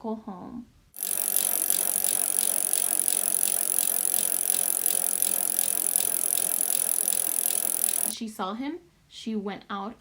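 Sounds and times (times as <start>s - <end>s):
bicycle chain ticking: 1.0s - 8.2s
bicycle rattling: 1.0s - 8.2s.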